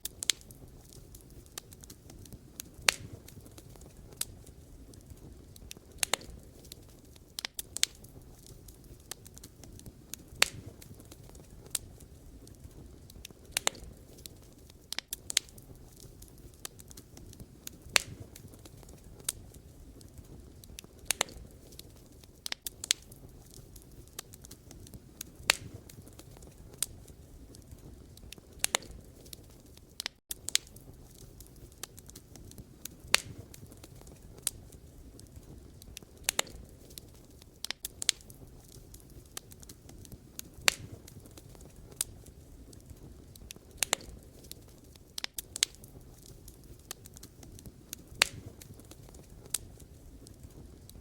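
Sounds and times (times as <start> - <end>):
low rush of flame: 0.0 - 51.0
wood fire crackling: 0.0 - 51.0.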